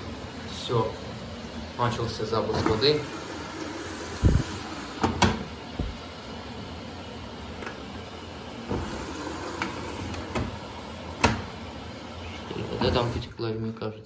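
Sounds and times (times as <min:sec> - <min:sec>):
washing machine running hum: 0:00.0 - 0:14.0
dull knocks: 0:05.1 - 0:06.0.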